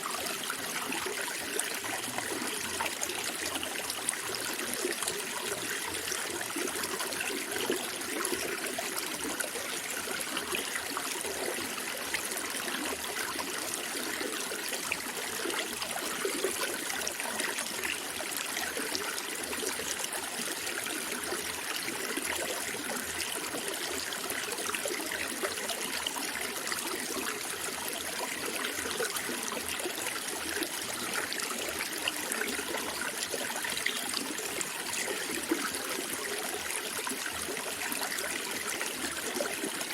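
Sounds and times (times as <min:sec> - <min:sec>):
stream running and gurgling: 0:00.0 - 0:39.9.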